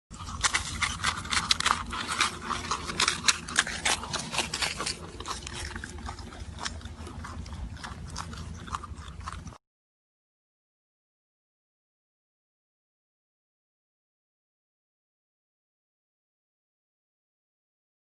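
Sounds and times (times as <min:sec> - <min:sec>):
animal chewing crunchily: 0:00.1 - 0:09.6.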